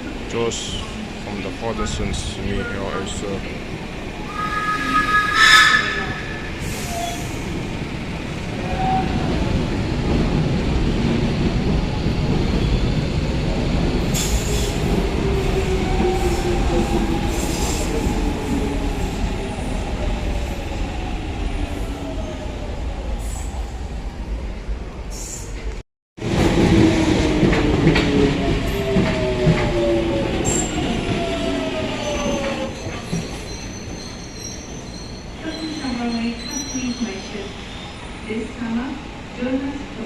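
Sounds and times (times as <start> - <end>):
train rumbling: 0.0 - 40.0
train whine falling in pitch: 4.3 - 7.2
train brakes squealing: 4.3 - 7.5, 32.0 - 38.2.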